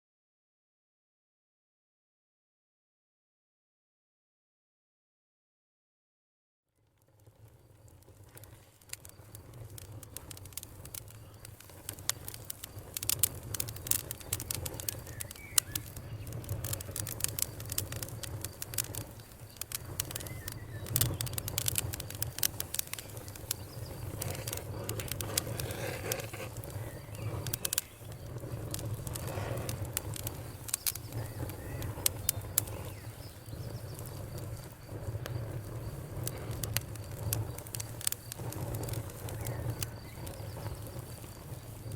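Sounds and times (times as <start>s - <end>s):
wood fire crackling and popping: 6.8s - 41.9s
crickets trilling: 7.3s - 41.9s
birds chirping: 10.8s - 36.7s, 37.4s - 41.9s.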